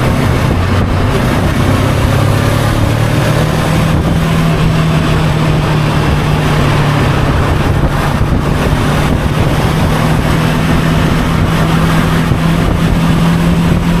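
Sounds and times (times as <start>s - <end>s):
motorcycle engine cruising: 0.0s - 14.0s
wind and road noise: 0.0s - 14.0s.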